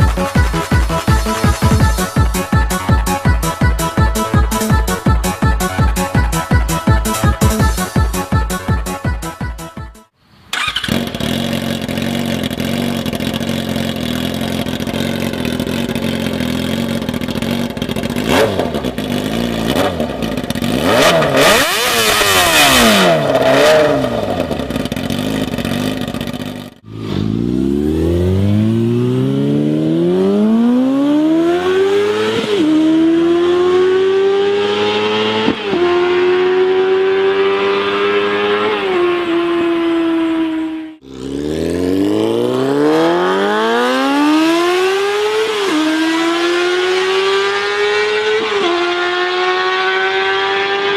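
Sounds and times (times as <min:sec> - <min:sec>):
motorcycle accelerating through gears: 0:10.5 - 0:50.9
motorcycle engine revving: 0:10.5 - 0:50.9.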